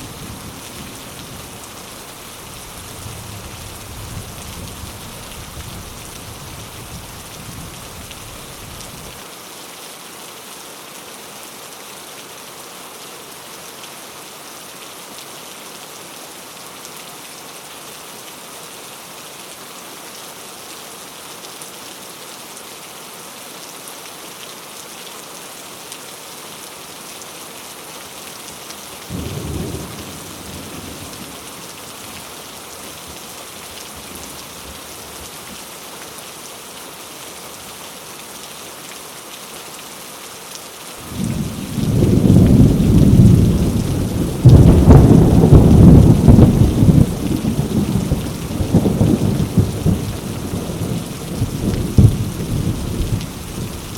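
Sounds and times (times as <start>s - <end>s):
heavy rain on leaves: 0.0s - 53.9s
thunder rumbling: 41.1s - 53.9s.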